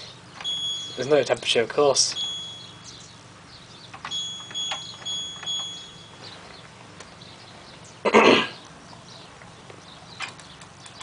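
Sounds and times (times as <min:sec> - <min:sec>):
washing machine beeping: 0:00.4 - 0:01.3, 0:02.1 - 0:03.1, 0:03.9 - 0:06.6.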